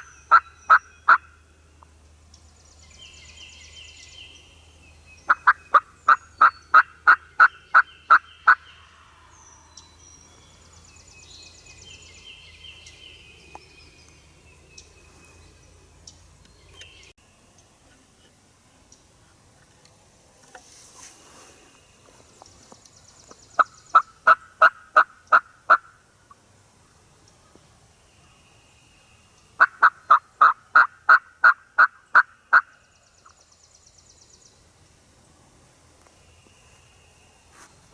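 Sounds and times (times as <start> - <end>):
loud turkey yelps: 0.0 - 1.3
birds singing faintly: 0.0 - 37.9.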